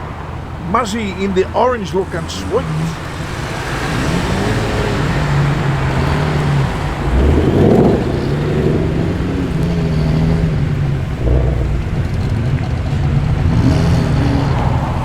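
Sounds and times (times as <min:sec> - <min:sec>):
car engine passing slowly: 0:00.0 - 0:15.0.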